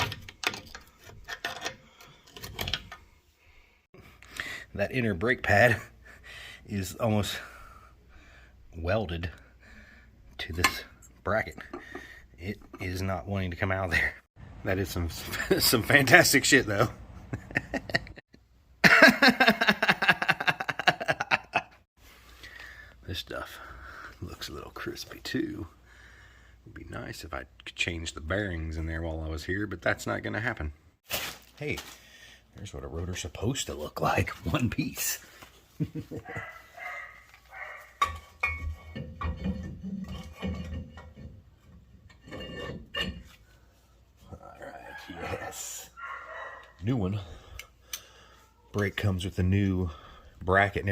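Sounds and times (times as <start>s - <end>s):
metal brake parts clinking: 38.0s - 43.4s.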